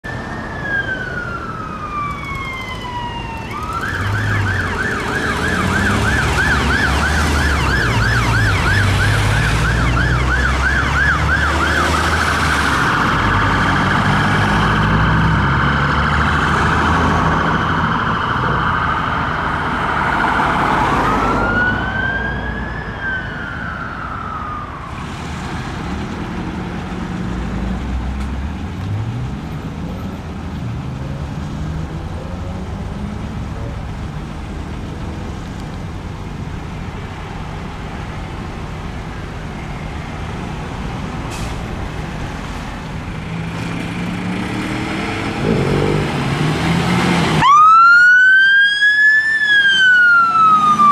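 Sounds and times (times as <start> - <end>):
fire engine siren wailing and yelping: 0.0 - 50.9
truck engine running: 23.9 - 47.5.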